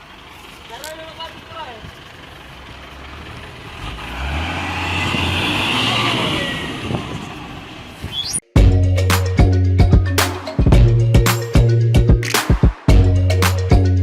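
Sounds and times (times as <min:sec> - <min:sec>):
truck engine running: 0:00.0 - 0:08.0.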